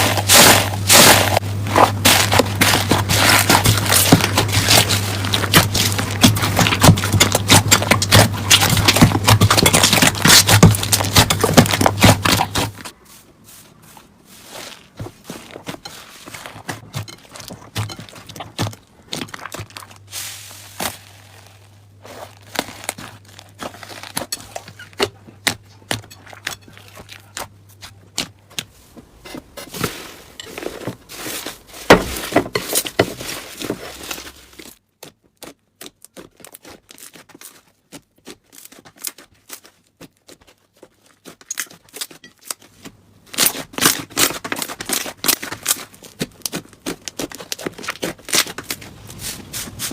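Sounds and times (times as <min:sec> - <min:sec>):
slime crackling and popping: 0:00.0 - 0:12.8, 0:17.8 - 0:27.4, 0:43.3 - 0:49.1.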